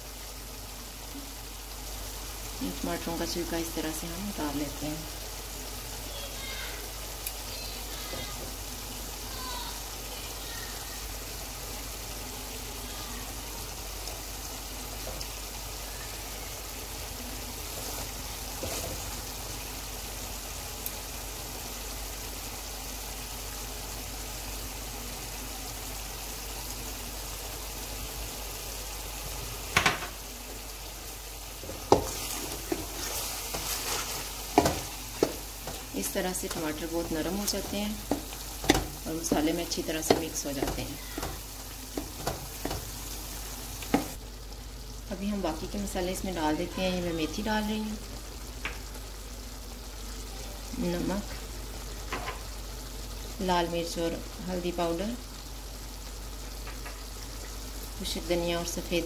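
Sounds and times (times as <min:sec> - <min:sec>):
food sizzling in oil: 0:00.0 - 0:59.0
wooden spatula scraping a pan: 0:17.6 - 0:19.3, 0:31.6 - 0:44.2.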